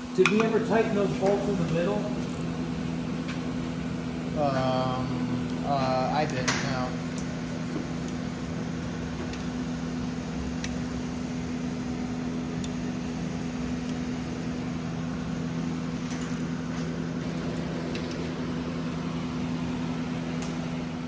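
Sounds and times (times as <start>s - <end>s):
machine hum with low tones: 0.0s - 21.0s.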